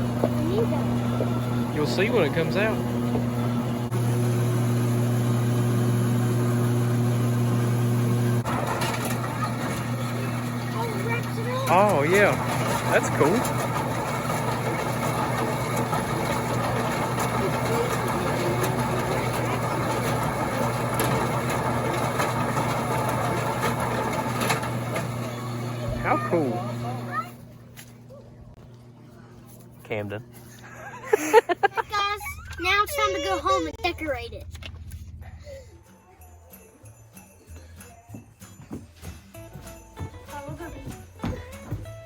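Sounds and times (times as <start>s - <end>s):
baling machine motor humming: 0.0s - 27.6s.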